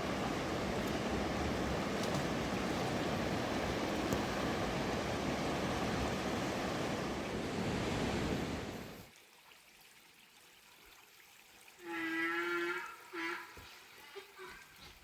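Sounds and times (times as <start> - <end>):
rushing river water: 0.0 - 9.4.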